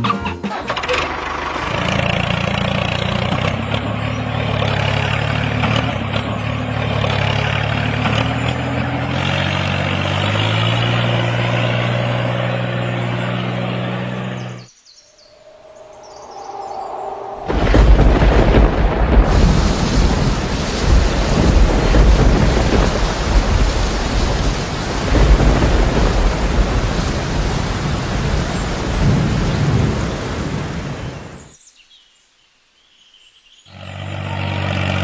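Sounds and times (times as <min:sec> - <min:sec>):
tractor engine running: 0:00.0 - 0:14.6, 0:17.6 - 0:29.2.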